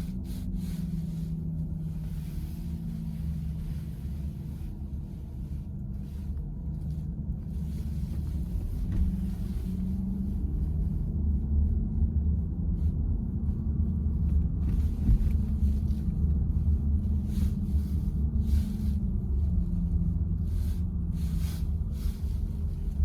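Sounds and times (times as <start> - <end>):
road and tyre rumble: 0.0 - 23.0.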